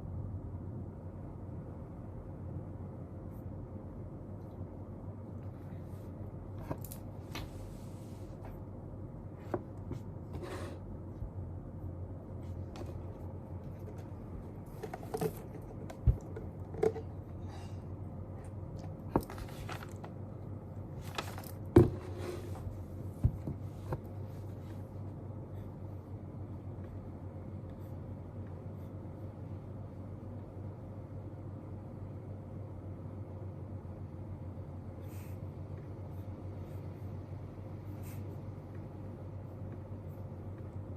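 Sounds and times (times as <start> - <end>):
low background noise: 0.0 - 40.9
paper rustles: 19.1 - 20.1, 21.0 - 22.7.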